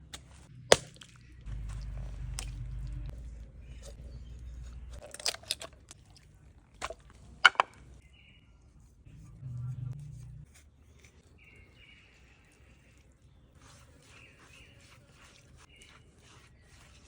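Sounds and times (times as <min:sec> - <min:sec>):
sharp crunches and knocks: 0:00.0 - 0:03.1
low hum: 0:00.0 - 0:05.4, 0:09.0 - 0:10.6.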